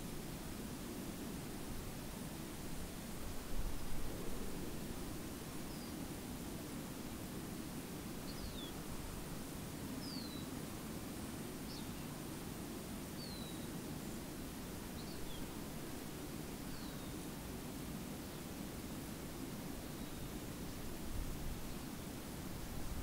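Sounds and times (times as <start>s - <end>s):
low background noise: 0.0s - 23.0s
small bird chirping: 8.2s - 8.8s, 10.0s - 10.5s, 11.7s - 12.1s, 13.2s - 13.7s.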